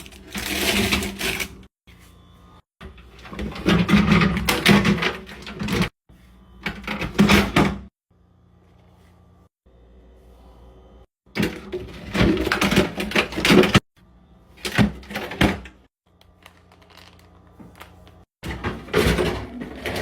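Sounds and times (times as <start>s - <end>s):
packaging rustling: 16.2s - 18.2s
containers clattering: 16.4s - 20.0s.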